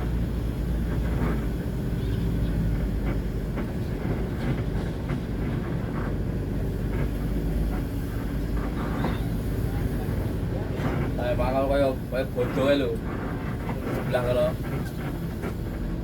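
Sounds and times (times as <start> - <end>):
heavy engine rumbling: 0.0 - 16.0.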